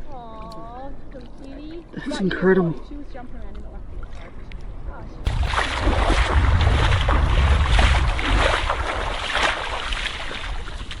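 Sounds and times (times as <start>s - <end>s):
wind buffeting the microphone: 3.4s - 11.0s
water splashing and churning: 5.3s - 11.0s.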